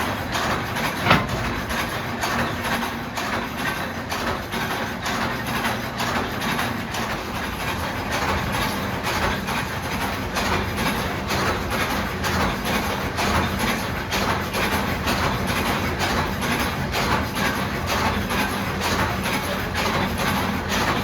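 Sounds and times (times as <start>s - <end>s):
heavy factory machinery din: 0.0s - 21.0s
regular machine clank: 0.3s - 3.4s.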